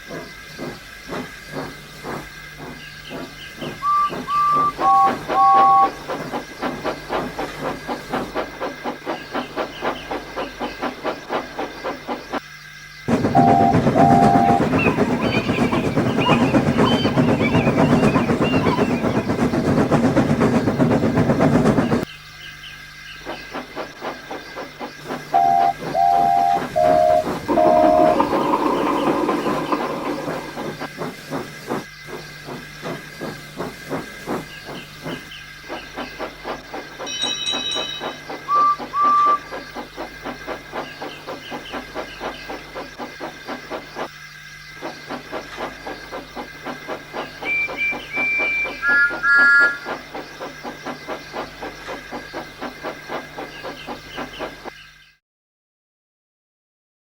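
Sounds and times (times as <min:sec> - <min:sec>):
loud hissing steam: 0:00.0 - 0:12.4, 0:13.1 - 0:22.1, 0:23.3 - 0:54.7
wheels clattering on track: 0:00.0 - 0:12.4, 0:13.1 - 0:22.1, 0:23.3 - 0:54.7
steam locomotive whistle: 0:03.8 - 0:06.1, 0:13.1 - 0:19.3, 0:25.3 - 0:30.4, 0:37.1 - 0:39.5, 0:47.4 - 0:50.0.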